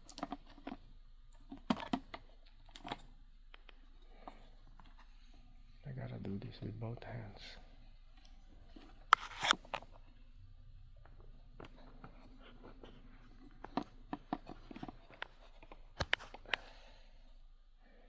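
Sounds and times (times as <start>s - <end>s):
hands clicking on plastic controller: 0.0s - 5.0s, 11.6s - 16.7s.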